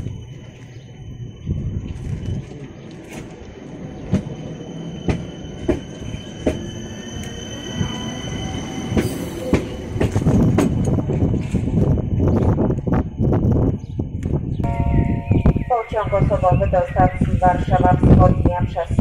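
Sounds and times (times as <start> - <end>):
train wheels clicking over rail joints: 8.9 - 11.9
high ringing tones: 14.6 - 17.4.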